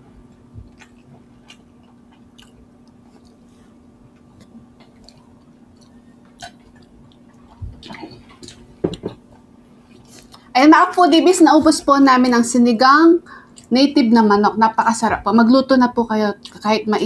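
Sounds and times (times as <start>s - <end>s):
people chewing food: 0.0s - 10.5s
faint steady hum: 0.0s - 17.0s.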